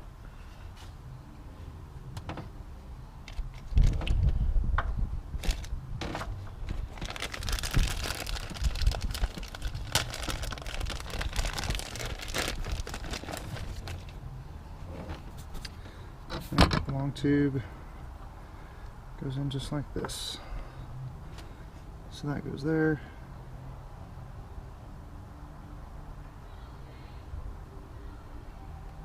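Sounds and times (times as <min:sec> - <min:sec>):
plastic crackling and rustling: 0:05.4 - 0:14.2.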